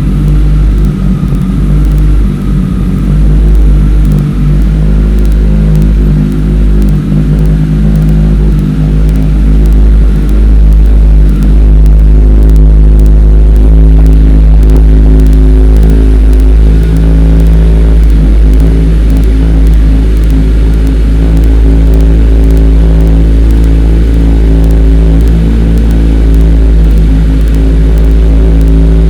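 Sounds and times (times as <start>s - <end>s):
motorcycle engine idling: 0.0s - 29.0s.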